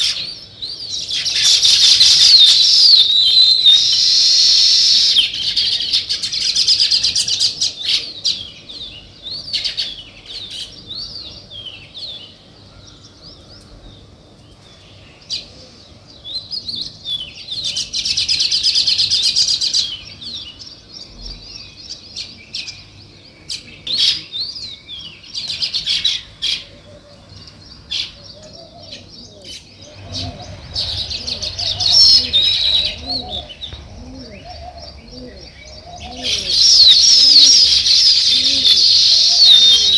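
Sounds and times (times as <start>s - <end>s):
sparrows chirping: 0.0s - 39.9s
low cooing notes: 29.9s - 39.9s.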